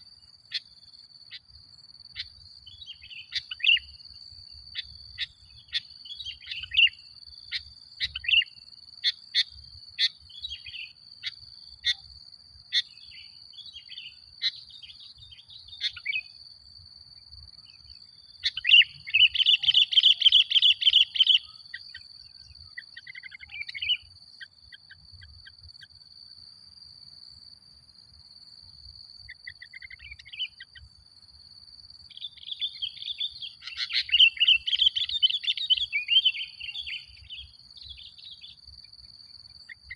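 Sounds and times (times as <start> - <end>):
bird chirping and singing: 17.8 - 24.1, 32.2 - 38.6.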